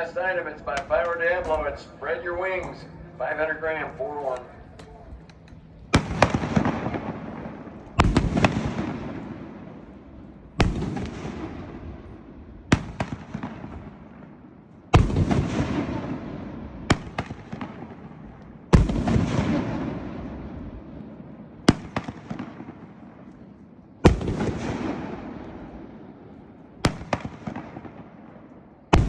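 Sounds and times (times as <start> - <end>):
firework bangs: 5.9 - 9.7, 18.8 - 20.5, 24.1 - 25.8, 26.8 - 28.1
sharp firework cracks: 8.0 - 9.1, 26.9 - 28.0.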